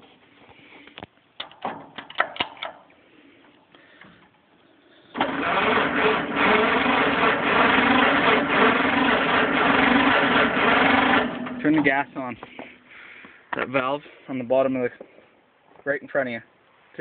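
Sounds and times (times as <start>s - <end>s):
engine cranking: 5.1s - 12.1s.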